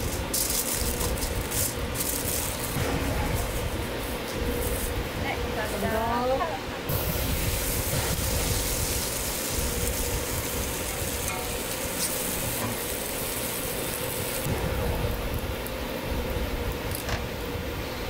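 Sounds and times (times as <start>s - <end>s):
ham sizzling on a griddle: 6.9s - 17.4s.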